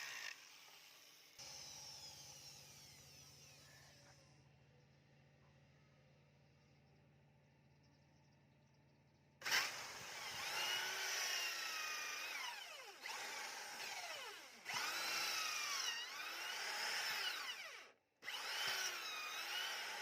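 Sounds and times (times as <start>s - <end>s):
power tool running on metal: 0.0s - 4.2s, 9.4s - 20.0s.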